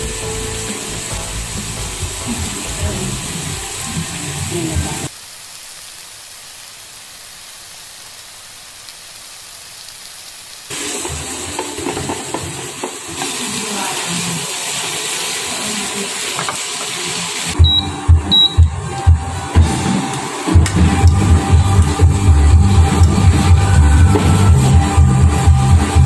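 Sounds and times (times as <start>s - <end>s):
fish sizzling in a pan: 0.0s - 17.6s.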